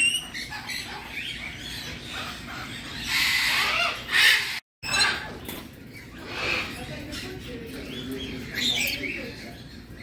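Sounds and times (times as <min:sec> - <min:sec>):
parrot squawking: 0:00.0 - 0:05.4.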